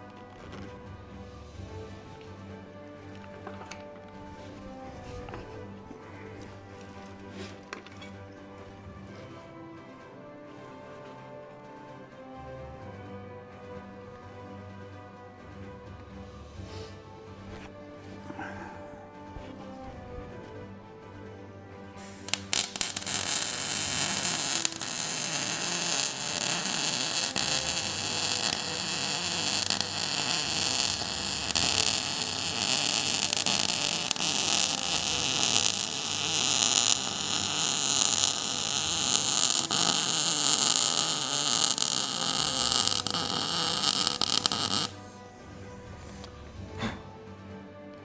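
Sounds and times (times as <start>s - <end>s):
welding arc hissing: 22.1s - 45.0s.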